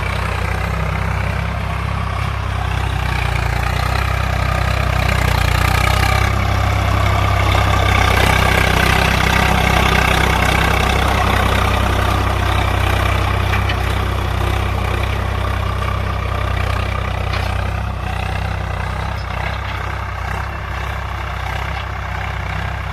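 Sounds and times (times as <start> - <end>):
tractor diesel engine running: 0.0 - 22.9.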